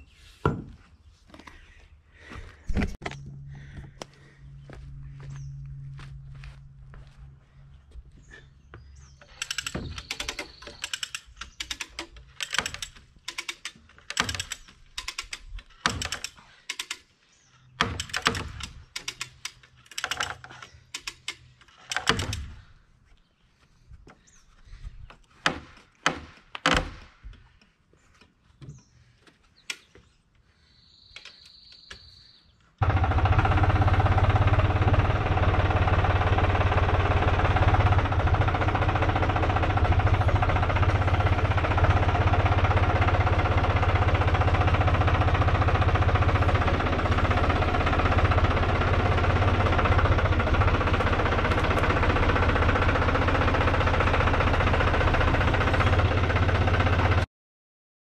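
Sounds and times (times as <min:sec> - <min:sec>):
sharp knocks and clicks: 0:09.2 - 0:17.1, 0:17.8 - 0:22.6, 0:25.4 - 0:27.5
loud steady engine drone: 0:32.8 - 0:57.2.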